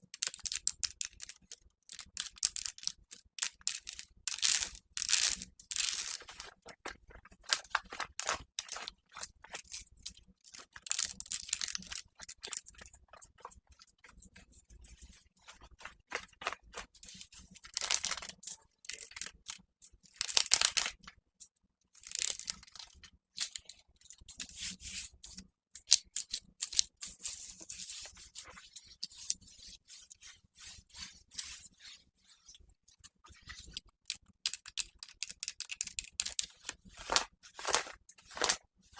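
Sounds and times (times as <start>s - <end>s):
rustling and crinkling material: 4.0s - 11.1s, 11.7s - 18.5s, 36.7s - 38.9s.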